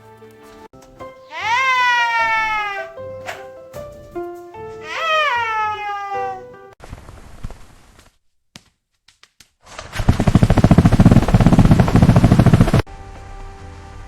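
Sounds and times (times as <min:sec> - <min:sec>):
loud rapid rattling: 0:09.9 - 0:12.9.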